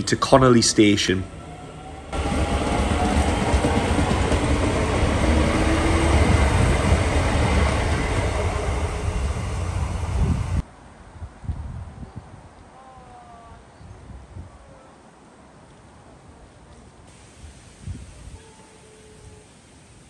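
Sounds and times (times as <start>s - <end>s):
train wheels rumbling on rails: 0.0s - 10.6s.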